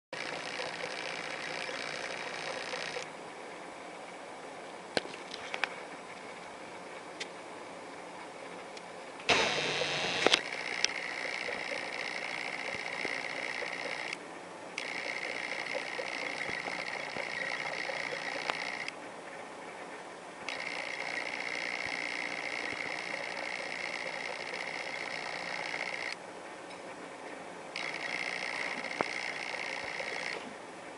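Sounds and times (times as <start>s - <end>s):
sharp clicks: 9.3s - 14.2s, 14.8s - 19.0s, 20.5s - 26.2s, 27.8s - 30.4s.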